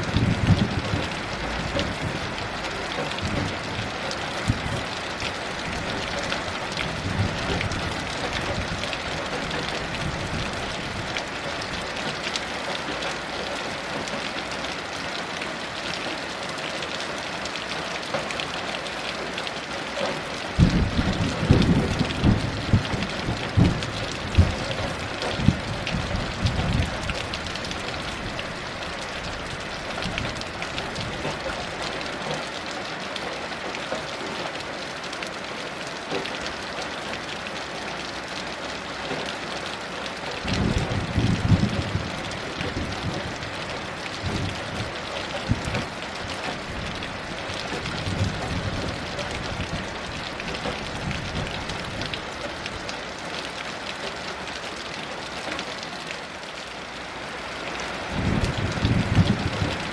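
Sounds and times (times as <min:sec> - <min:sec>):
rolling thunder: 0:00.0 - 0:02.4, 0:20.6 - 0:27.2, 0:40.4 - 0:43.5, 0:58.2 - 0:59.9
heavy rain falling: 0:00.0 - 0:59.9.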